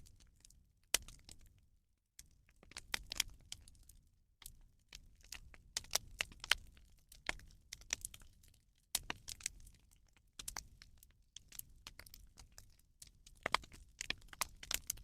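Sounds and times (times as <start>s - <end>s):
fire popping and snapping: 0.0s - 1.6s, 2.2s - 15.0s
bonfire crackling: 4.9s - 9.8s, 10.4s - 15.0s.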